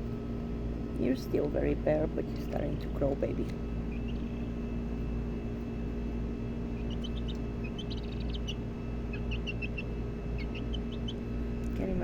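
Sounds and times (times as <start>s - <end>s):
steady low hum: 0.0s - 12.0s
birds chirping: 2.3s - 12.0s.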